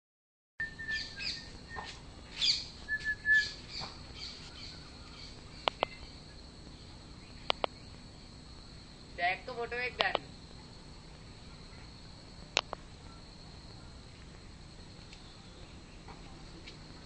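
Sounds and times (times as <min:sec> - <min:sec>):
birds chirping and whistling: 0:00.6 - 0:08.4
steady high-pitched whine: 0:00.6 - 0:17.0
sharp clicks: 0:05.6 - 0:06.0, 0:07.4 - 0:07.8, 0:12.5 - 0:12.8.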